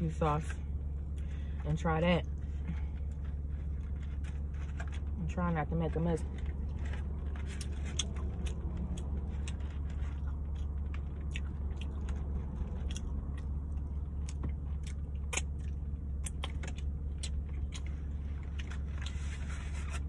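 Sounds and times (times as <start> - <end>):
steady low hum: 0.0 - 20.0
chewing and lip-smacking: 6.3 - 19.3.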